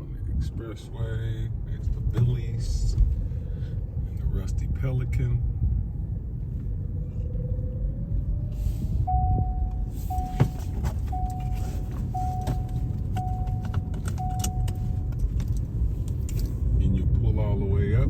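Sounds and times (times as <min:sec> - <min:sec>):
road rumble inside car: 0:00.0 - 0:18.0
steady beeps: 0:09.1 - 0:15.2.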